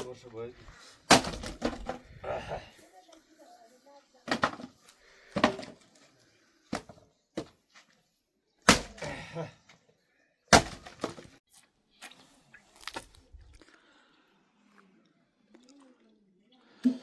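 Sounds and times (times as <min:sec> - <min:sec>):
sharp knocks and cracks: 0:01.1 - 0:02.0, 0:10.5 - 0:11.4.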